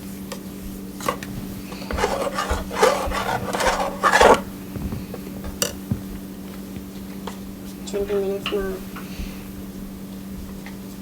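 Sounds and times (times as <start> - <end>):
spoon scraping metal pot: 1.8 - 4.5.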